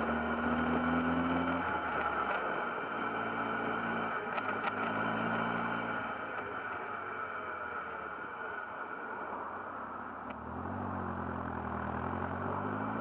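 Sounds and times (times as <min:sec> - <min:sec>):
car engine accelerating: 0:00.0 - 0:06.5, 0:10.3 - 0:13.0
wind and road noise: 0:00.0 - 0:13.0.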